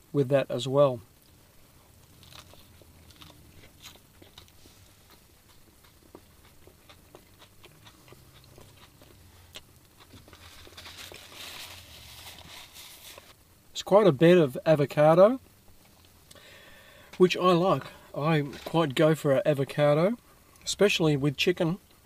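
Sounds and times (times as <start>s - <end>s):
low steady hum: 0.0s - 22.0s
soft hiss: 0.0s - 22.0s
man chewing crispy food: 1.2s - 13.4s.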